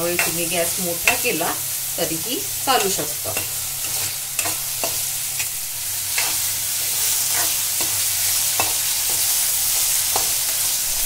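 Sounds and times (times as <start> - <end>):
onion and tomato sizzling in oil: 0.0 - 11.0
steel spatula scraping a pan: 2.7 - 10.7.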